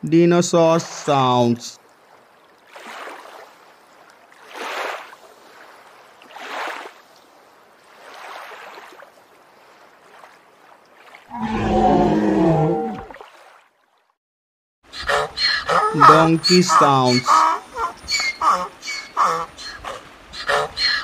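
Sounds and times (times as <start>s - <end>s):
breathy rasping creature calls: 11.3s - 13.1s, 15.1s - 21.0s.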